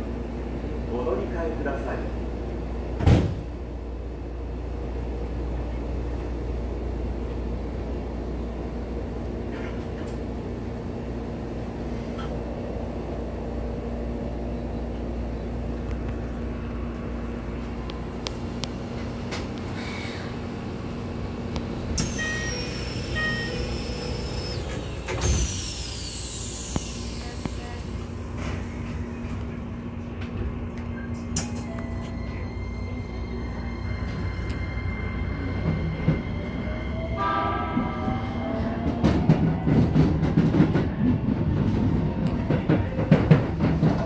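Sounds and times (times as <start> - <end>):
train wheels rumbling on rail: 0.0 - 44.0.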